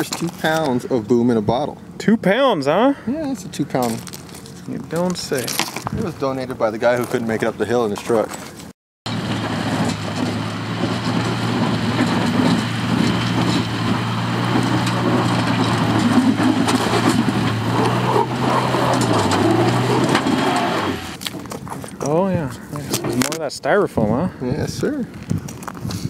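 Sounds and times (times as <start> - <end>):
vehicle engine running: 9.1 - 21.2
crunching rattling noise: 9.1 - 22.0.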